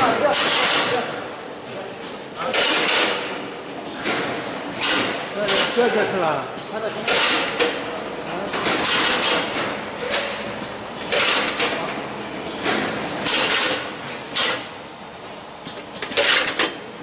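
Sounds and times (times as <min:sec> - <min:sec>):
packaging machine swishes and clatters: 0:15.7 - 0:16.8.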